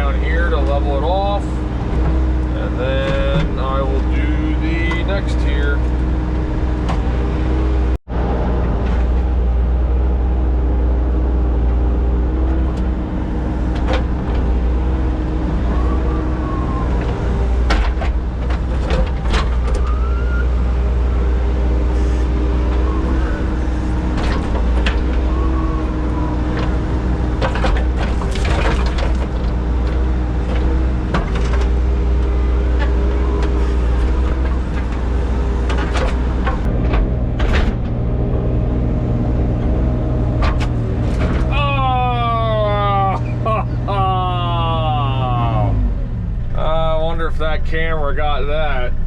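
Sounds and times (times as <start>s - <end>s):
heavy equipment engine running: 0.0s - 49.0s
sharp knocks and clanks: 17.0s - 20.0s, 32.7s - 38.1s.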